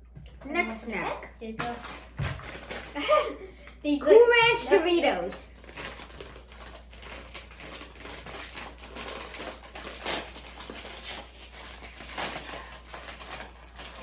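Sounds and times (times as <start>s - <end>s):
chip bag crinkling: 1.6s - 3.3s, 5.3s - 14.0s.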